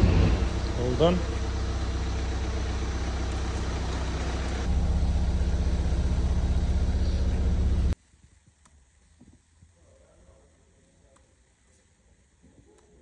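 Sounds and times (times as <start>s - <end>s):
diesel engine running: 0.0s - 8.0s.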